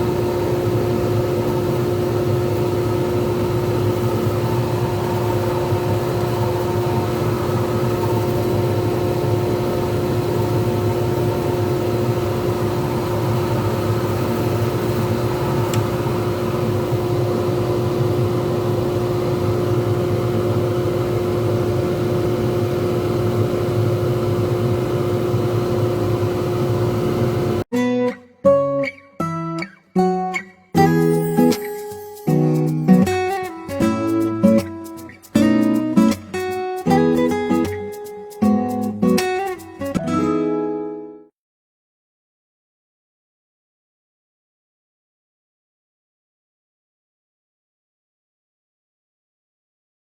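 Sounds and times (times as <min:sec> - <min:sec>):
lathe motor hum: 0:00.0 - 0:27.6.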